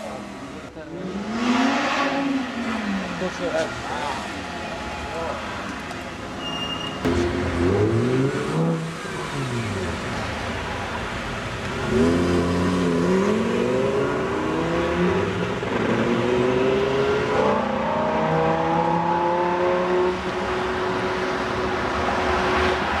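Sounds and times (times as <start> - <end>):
sports car accelerating through gears: 11.8 - 20.2.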